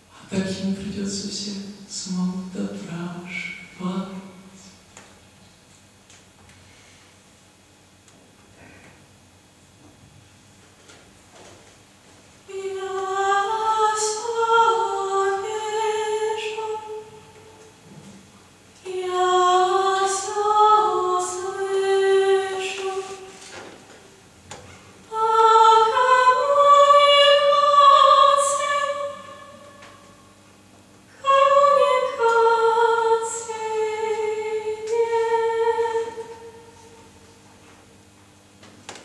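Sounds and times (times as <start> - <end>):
woman singing unaccompanied: 12.5 - 17.6, 18.8 - 23.9, 25.1 - 30.1, 31.2 - 37.0.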